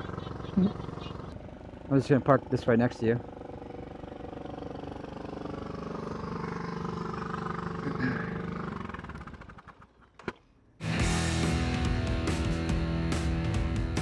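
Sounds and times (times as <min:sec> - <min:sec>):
motorcycle engine idling: 0:00.0 - 0:09.5.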